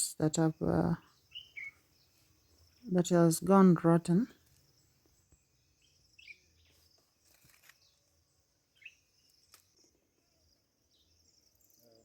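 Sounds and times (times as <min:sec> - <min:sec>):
bird chirp: 0:00.0 - 0:12.0
high insect hum: 0:00.0 - 0:12.0.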